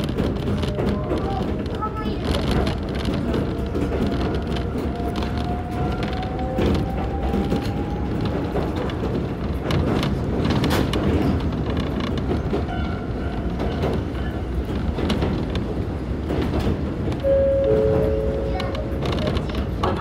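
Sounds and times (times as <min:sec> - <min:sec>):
clicks and creaks: 0:00.0 - 0:20.0
train wheels rumbling on rail: 0:00.0 - 0:20.0
two-note tone: 0:17.2 - 0:18.5.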